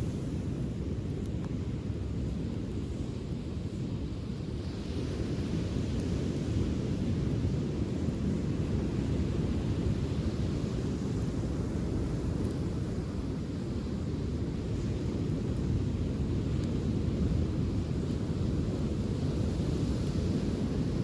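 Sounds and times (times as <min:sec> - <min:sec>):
wind: 0:00.0 - 0:21.0
bonfire crackling: 0:11.1 - 0:21.0.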